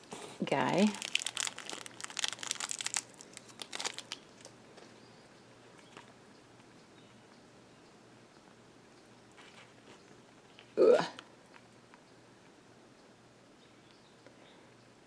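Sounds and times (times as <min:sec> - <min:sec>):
crinkly packaging crackling: 0:00.0 - 0:04.6.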